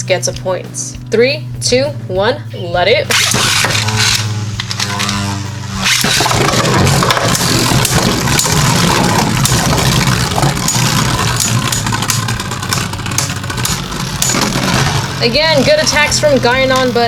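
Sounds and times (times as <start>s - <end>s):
spinning tops whirring: 3.1s - 17.0s
spinning tops clacking together: 5.8s - 15.2s.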